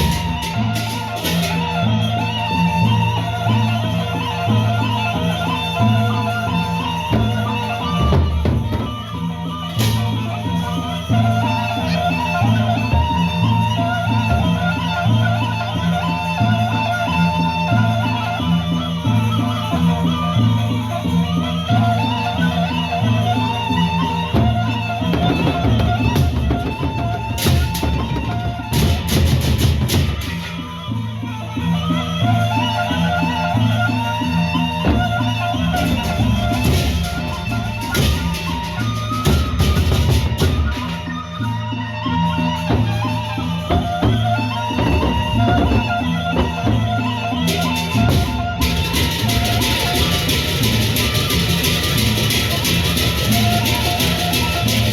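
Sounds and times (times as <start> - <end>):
gong and metallophone melody: 0.0 - 17.0, 18.0 - 54.9
double-headed drums beating: 0.0 - 54.9
barrel drums beating: 34.8 - 40.9.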